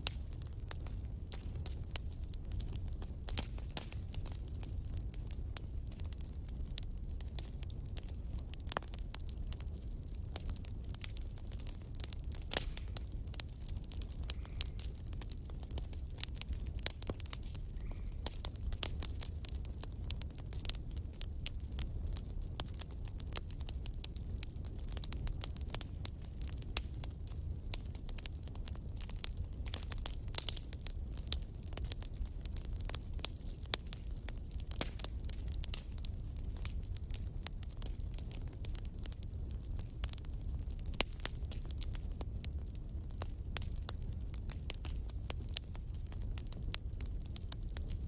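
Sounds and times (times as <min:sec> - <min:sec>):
fire crackling and popping: 0:00.0 - 0:48.0.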